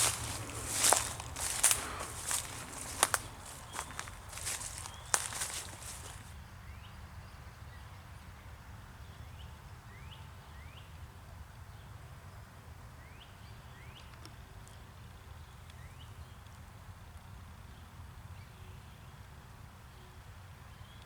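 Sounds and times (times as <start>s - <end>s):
footstep crunch: 0.0s - 6.3s
low outdoor background: 0.0s - 6.3s.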